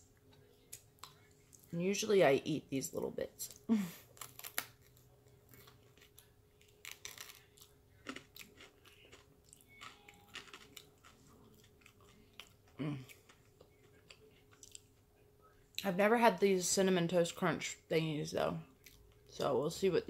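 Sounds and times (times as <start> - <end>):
chewing crispy crust: 4.0 - 15.8, 18.7 - 19.4.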